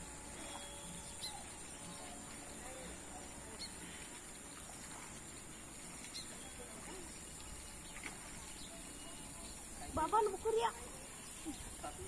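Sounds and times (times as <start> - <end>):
outdoor background hiss: 0.0 - 12.0
faint bird chirps: 0.4 - 3.9.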